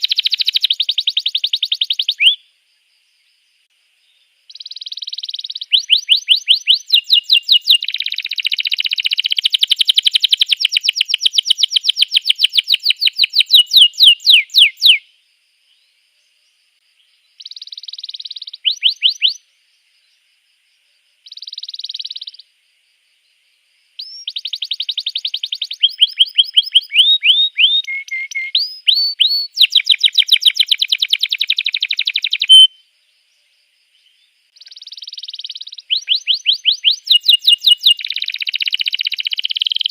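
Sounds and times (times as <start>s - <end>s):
canary singing trills: 0.0s - 2.5s, 4.2s - 15.1s, 17.2s - 19.5s, 21.2s - 22.5s, 24.0s - 32.8s, 34.0s - 39.9s.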